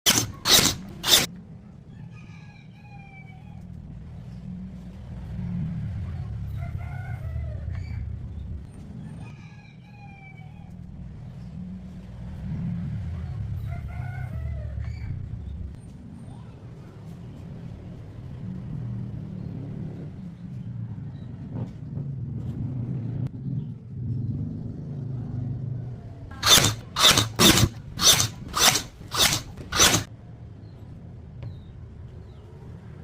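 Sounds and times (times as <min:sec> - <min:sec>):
rooster crowing: 0:13.6 - 0:15.0.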